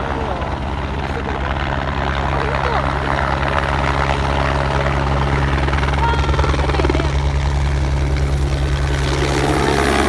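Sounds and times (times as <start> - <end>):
helicopter rotor beating: 0.0 - 10.0.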